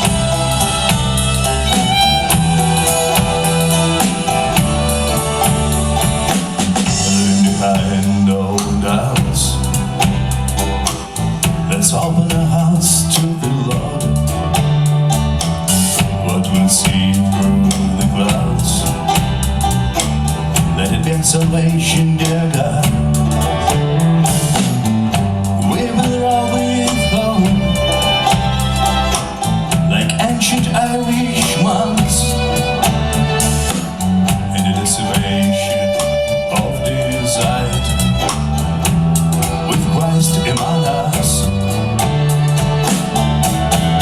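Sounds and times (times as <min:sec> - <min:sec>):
bass line: 0:00.0 - 0:44.0
live folk band playing: 0:00.0 - 0:44.0.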